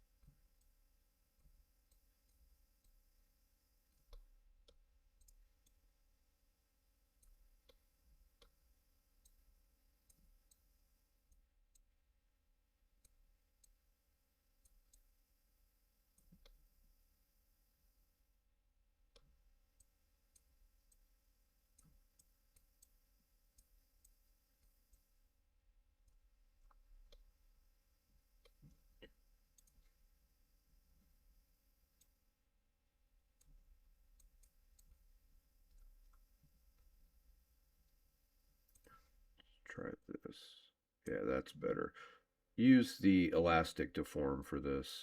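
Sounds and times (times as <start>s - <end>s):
computer mouse clicks: 4.0s - 5.8s, 21.7s - 25.1s, 28.4s - 30.0s.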